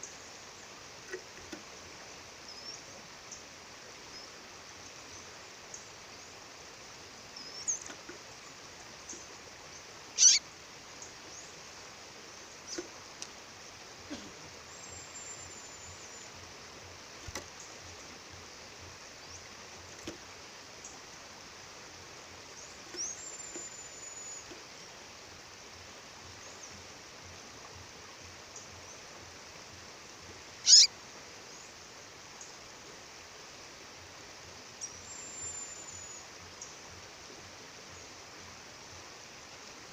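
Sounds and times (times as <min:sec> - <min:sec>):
bird calling: 0:10.2 - 0:10.4, 0:30.6 - 0:30.9.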